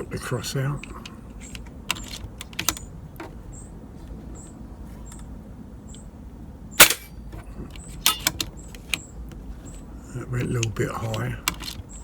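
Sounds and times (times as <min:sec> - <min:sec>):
air rifle shot: 0:06.8 - 0:07.1.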